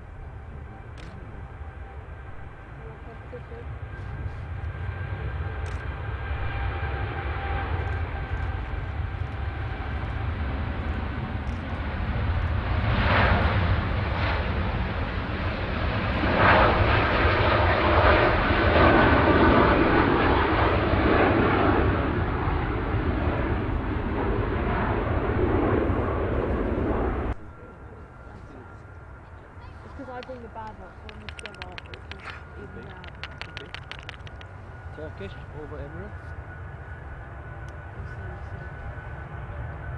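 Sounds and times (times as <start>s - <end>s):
jet airliner engines: 0.0s - 39.9s.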